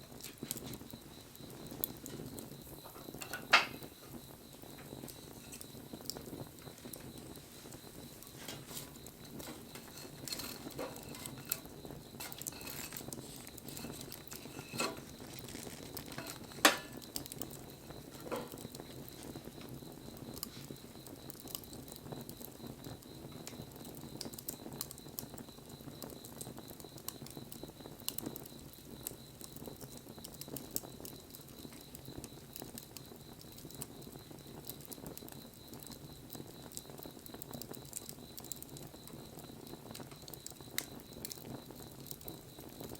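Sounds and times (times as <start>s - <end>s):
wood fire crackling and popping: 0.0s - 42.9s.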